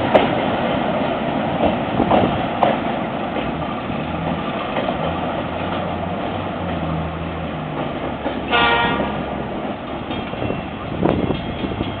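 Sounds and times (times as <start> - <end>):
diesel train engine running: 0.0 - 12.0
train horn blast: 8.4 - 9.3.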